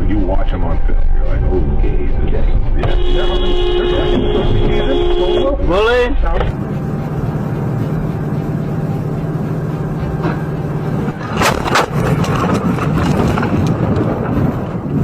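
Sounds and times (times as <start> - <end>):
vehicle running: 0.0 - 15.0
rattling and scraping: 9.8 - 14.8.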